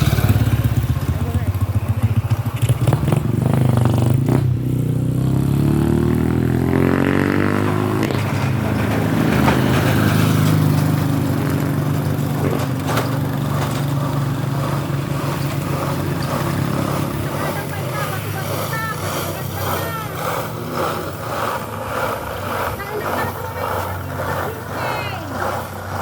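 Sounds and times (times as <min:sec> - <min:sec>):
motorcycle engine accelerating: 0:00.0 - 0:26.0
rattling: 0:06.4 - 0:26.0.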